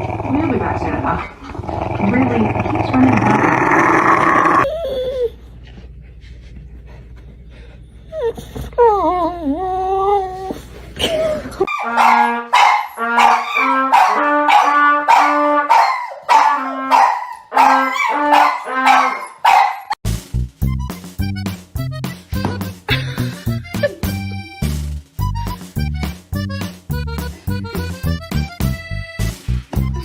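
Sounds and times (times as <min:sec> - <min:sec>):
dog whining: 0:08.1 - 0:10.6.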